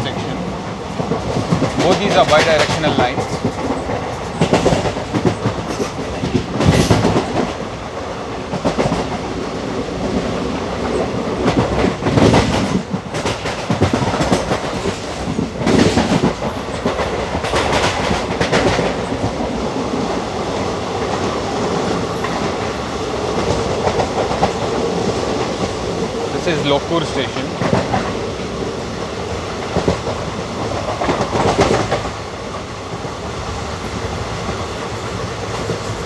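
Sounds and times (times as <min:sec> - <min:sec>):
train running rumble: 0:00.0 - 0:36.0
train wheels clattering over rail joints: 0:00.0 - 0:36.0.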